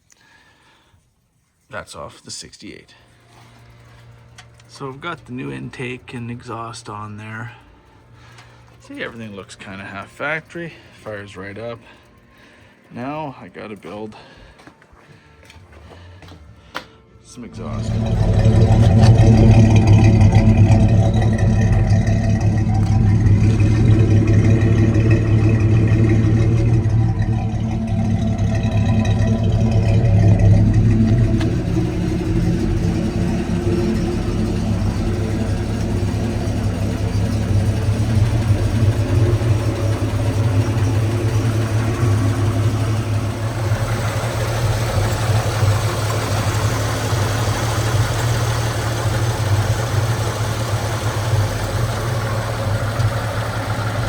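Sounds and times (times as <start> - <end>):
truck engine running: 1.7 - 54.0.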